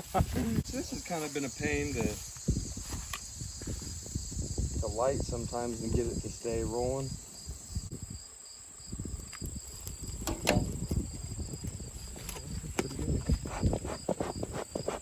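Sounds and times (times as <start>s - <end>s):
crickets chirping: 0.0s - 15.0s
handling rustles and knocks: 9.8s - 15.0s.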